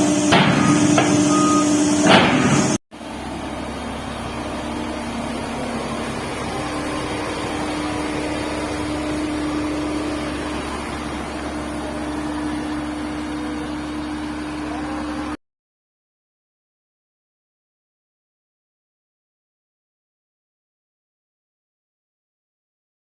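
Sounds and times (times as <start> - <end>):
held tone: 0.0 - 2.8
excavator diesel engine running: 0.0 - 15.4.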